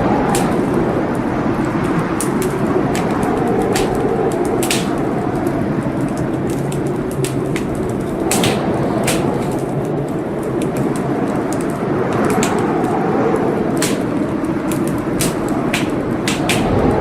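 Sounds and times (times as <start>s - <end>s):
logs crackling and popping: 0.0s - 17.0s
wood fire burning: 0.0s - 17.0s.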